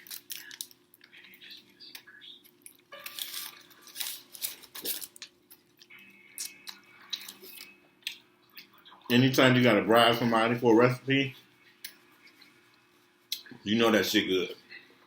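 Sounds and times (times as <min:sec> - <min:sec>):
chewing with crackling clicks: 0:00.0 - 0:09.1
faint steady hum: 0:00.0 - 0:15.0.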